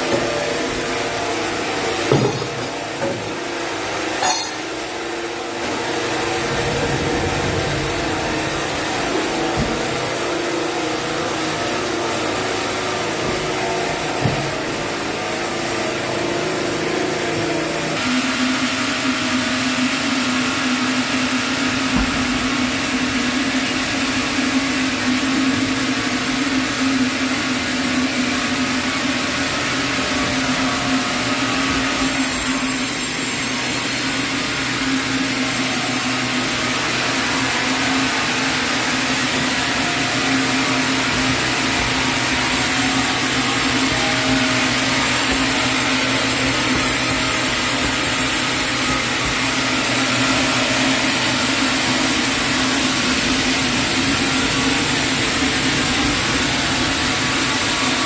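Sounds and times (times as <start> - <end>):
sawmill saw humming: 0.0 - 58.0
saw cutting through log: 29.1 - 58.0.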